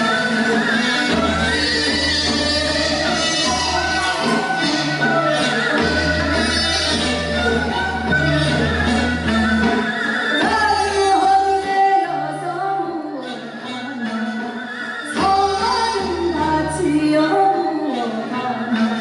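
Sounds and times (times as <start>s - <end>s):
instrumental accompaniment: 0.0s - 19.0s
woman singing folk song: 10.4s - 14.4s, 15.0s - 19.0s.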